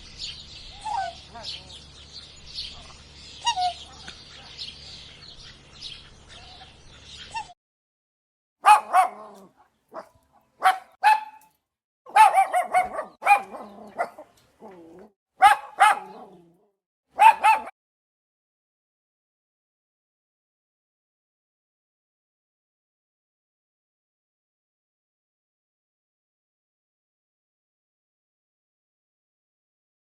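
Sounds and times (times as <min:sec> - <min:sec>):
birds chirping: 0:00.0 - 0:07.6, 0:08.6 - 0:11.4, 0:12.1 - 0:16.6, 0:17.2 - 0:17.7
dog yapping: 0:08.6 - 0:11.5, 0:12.1 - 0:16.6, 0:17.2 - 0:17.7.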